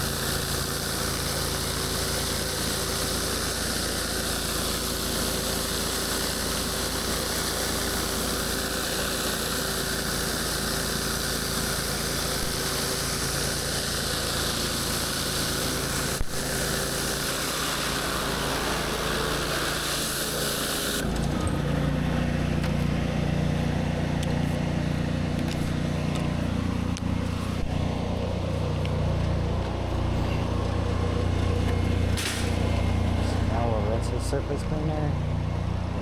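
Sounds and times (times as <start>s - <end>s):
water spraying onto concrete: 0.0s - 21.3s
pressure washer engine running: 0.0s - 36.0s.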